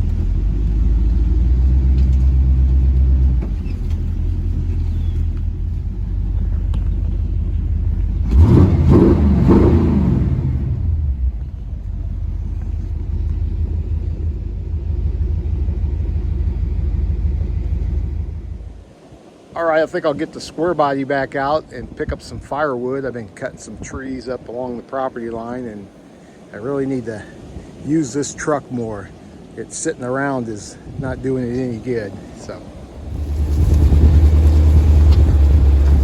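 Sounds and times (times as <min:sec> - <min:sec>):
vehicle engine running: 0:00.0 - 0:18.9, 0:32.7 - 0:36.0.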